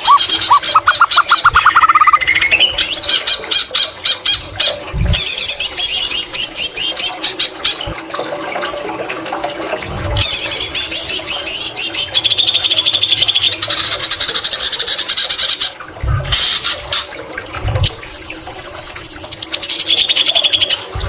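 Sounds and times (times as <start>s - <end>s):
bird singing varied song: 0.0s - 3.3s.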